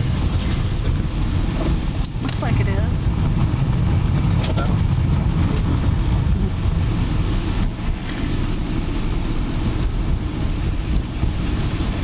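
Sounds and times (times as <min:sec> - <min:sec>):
car engine and tyres rumble: 0:00.0 - 0:12.0.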